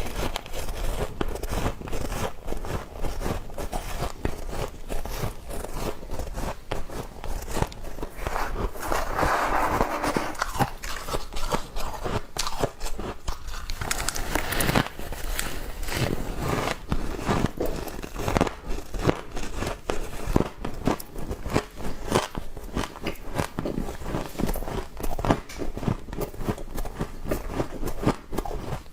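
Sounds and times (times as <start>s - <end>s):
frost being chewed with crisp crunches: 10.4s - 28.9s.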